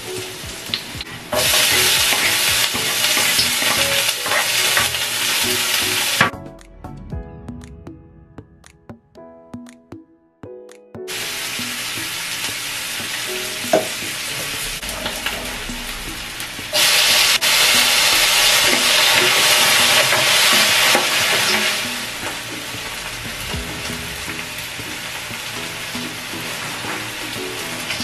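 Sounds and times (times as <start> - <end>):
onions sizzling in hot oil: 0.0 - 6.3, 11.1 - 28.0
tomatoes hitting a hot pan: 0.6 - 6.3, 16.7 - 27.4
spatula stirring in a pan: 1.3 - 5.8.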